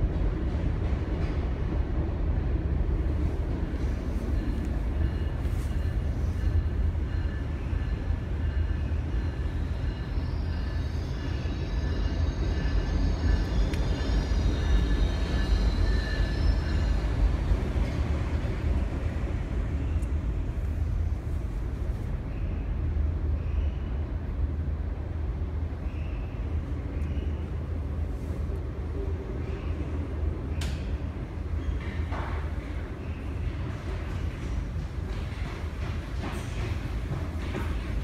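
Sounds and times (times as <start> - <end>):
train wheels rumbling on rails: 0.0 - 38.0
faint high-pitched squeals: 3.8 - 18.0.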